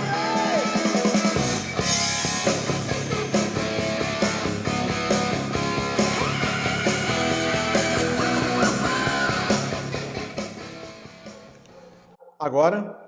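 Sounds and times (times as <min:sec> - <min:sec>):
rock music with guitar: 0:00.0 - 0:12.0.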